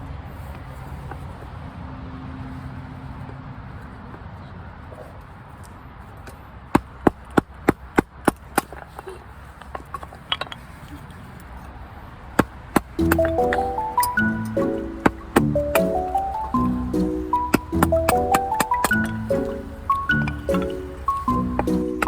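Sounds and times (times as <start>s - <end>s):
music: 13.0s - 22.0s.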